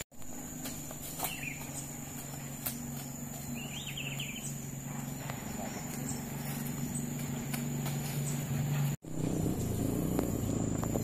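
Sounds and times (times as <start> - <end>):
steady low hum: 0.0 - 11.0
bird chirps: 0.4 - 11.0.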